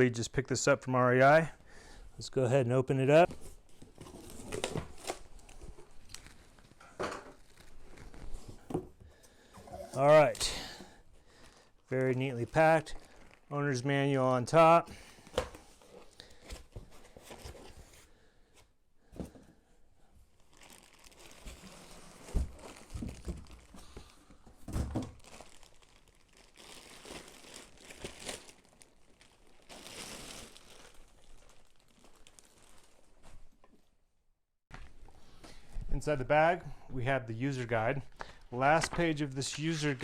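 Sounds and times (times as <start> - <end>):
bag crinkling and rustling: 3.6 - 6.8, 7.4 - 8.5, 11.4 - 13.5, 20.4 - 24.2, 25.1 - 33.6.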